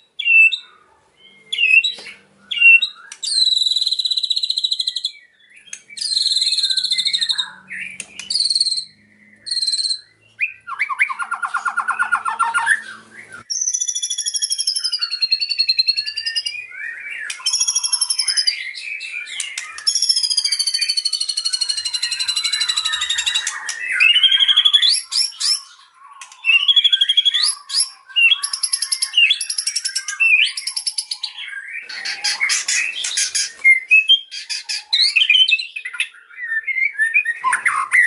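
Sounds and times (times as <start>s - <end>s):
bird singing: 0.0s - 38.0s.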